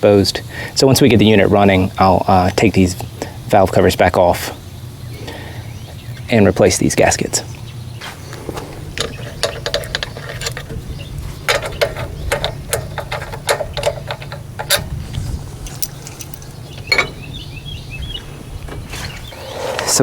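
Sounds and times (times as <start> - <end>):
low steady hum: 0.0 - 20.0
metal tools clicking and clinking: 9.0 - 17.4.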